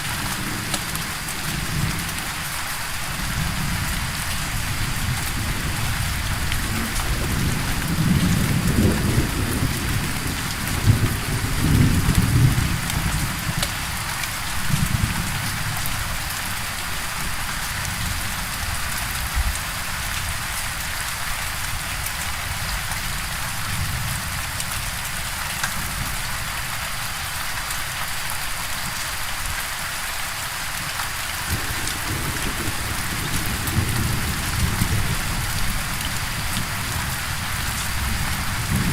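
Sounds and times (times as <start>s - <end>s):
heavy rain hissing: 0.0s - 38.9s
rolling thunder: 3.4s - 13.5s, 31.5s - 38.9s.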